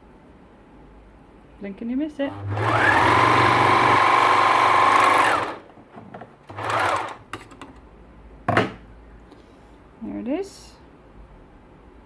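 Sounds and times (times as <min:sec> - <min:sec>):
sewing machine whining: 0:02.3 - 0:05.7, 0:06.5 - 0:07.2.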